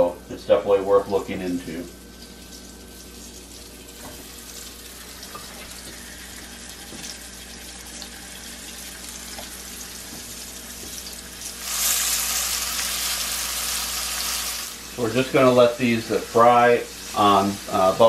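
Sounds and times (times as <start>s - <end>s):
food sizzling in a skillet: 11.4s - 15.0s.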